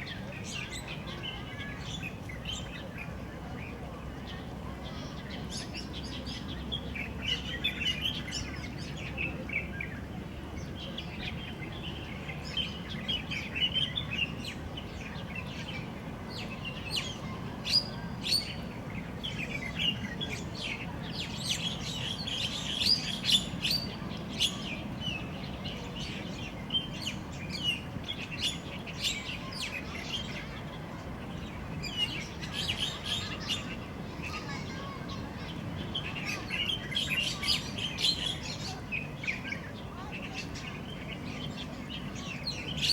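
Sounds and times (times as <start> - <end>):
low background noise: 0.0 - 42.9
birds chirping and calling: 21.2 - 25.2, 34.3 - 40.8.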